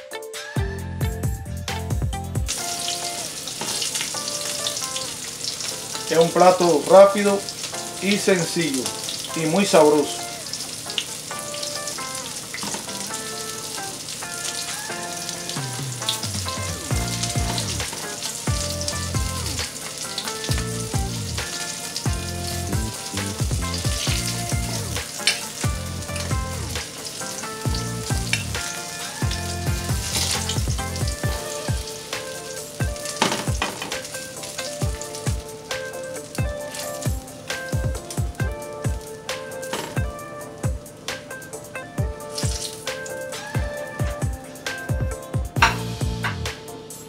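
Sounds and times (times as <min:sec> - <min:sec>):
music with pulsing bass: 0:00.6 - 0:02.5, 0:15.8 - 0:17.9, 0:18.5 - 0:19.6, 0:20.5 - 0:21.4, 0:22.1 - 0:25.0, 0:25.6 - 0:26.8, 0:27.7 - 0:28.6, 0:29.2 - 0:31.8, 0:43.6 - 0:46.6
shrimp sizzling in oil: 0:02.5 - 0:44.8.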